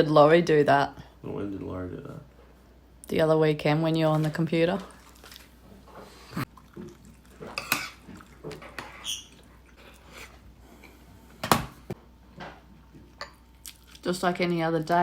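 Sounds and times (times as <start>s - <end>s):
dishes and cutlery clinking: 7.3s - 10.3s, 13.1s - 13.4s.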